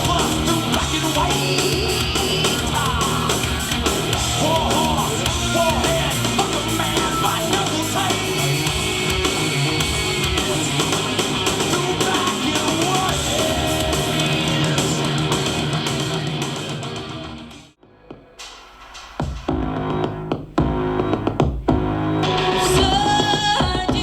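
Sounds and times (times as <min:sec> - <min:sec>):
rock music through speaker: 0:00.0 - 0:24.0.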